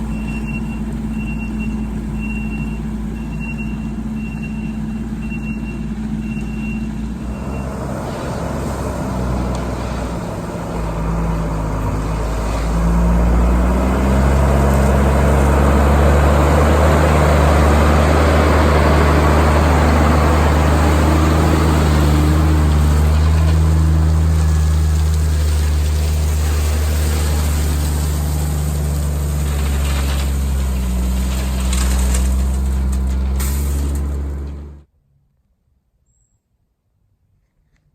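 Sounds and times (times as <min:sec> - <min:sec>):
diesel engine revving: 0:00.0 - 0:34.8
backup alarm beeping: 0:00.1 - 0:07.7.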